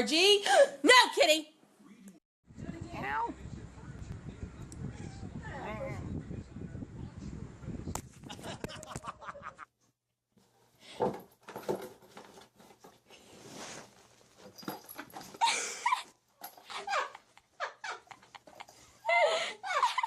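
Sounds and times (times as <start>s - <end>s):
handling noises: 10.9s - 15.6s.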